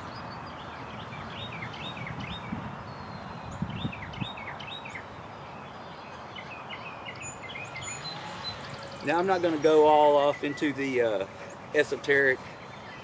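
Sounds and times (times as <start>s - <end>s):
outdoor noise hiss: 0.0s - 13.0s
small birds chirping: 0.0s - 13.0s.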